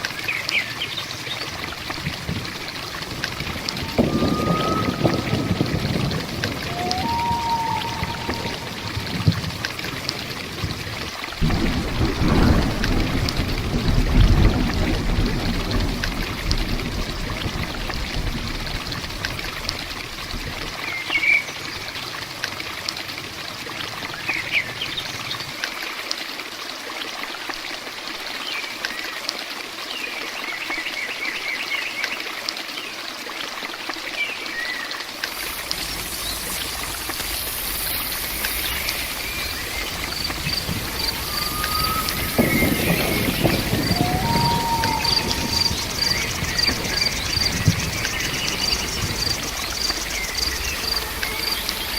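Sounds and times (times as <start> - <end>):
running water: 0.0 - 51.9
steady rain: 0.0 - 51.9
birds chirping: 2.8 - 9.4, 35.3 - 51.9
high insect drone: 35.2 - 51.9.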